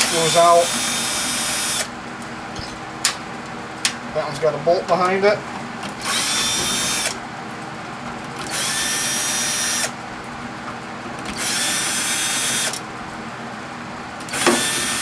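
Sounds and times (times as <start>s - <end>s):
power drill whining: 0.0s - 1.9s, 2.5s - 3.2s, 6.0s - 7.2s, 8.4s - 10.0s, 11.3s - 12.8s, 14.3s - 15.0s.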